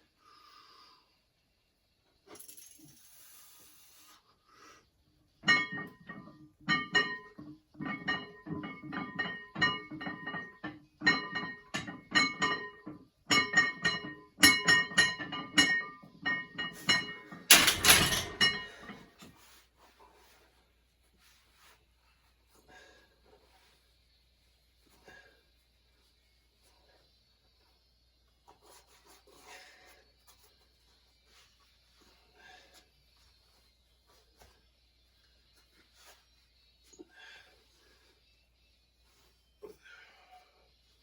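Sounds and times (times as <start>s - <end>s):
metal gym weights clanking: 5.4s - 19.1s.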